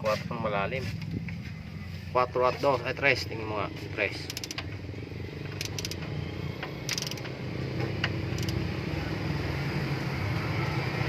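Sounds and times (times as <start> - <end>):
ratchet wrench clicking: 4.1 - 4.8, 5.4 - 7.4, 8.0 - 8.7.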